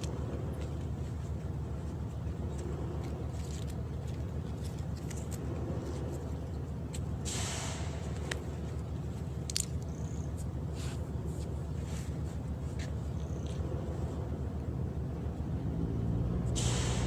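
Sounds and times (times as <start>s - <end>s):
low pulsing engine rumble: 0.0s - 17.0s
brief hiss: 7.2s - 8.1s, 16.6s - 17.0s.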